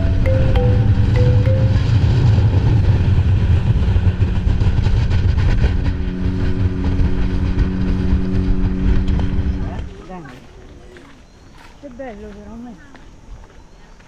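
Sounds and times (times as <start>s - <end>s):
vehicle engine rumbling: 0.0s - 10.3s.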